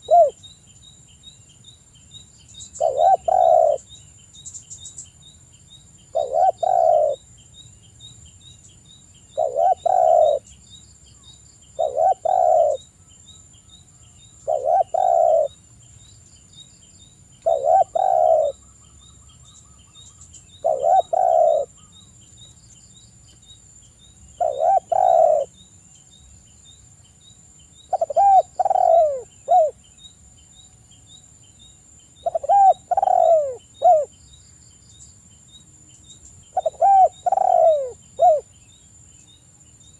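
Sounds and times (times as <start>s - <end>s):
dove cooing: 0.0s - 0.4s, 2.8s - 3.9s, 6.1s - 7.2s, 9.4s - 10.5s, 11.8s - 12.9s, 14.4s - 15.6s, 17.4s - 18.6s, 20.6s - 21.9s, 24.4s - 25.5s, 27.9s - 29.8s, 32.2s - 34.1s, 36.5s - 38.5s
faint insect whine: 0.0s - 39.9s.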